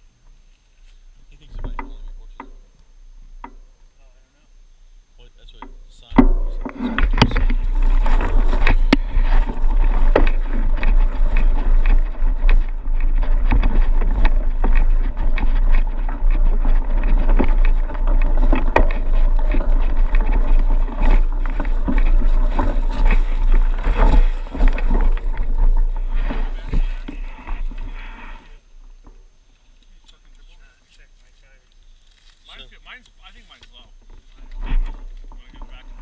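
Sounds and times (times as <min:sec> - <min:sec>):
bike rattling clicks and knocks: 0:05.4 - 0:28.4
wind rumble on microphone: 0:06.2 - 0:28.5.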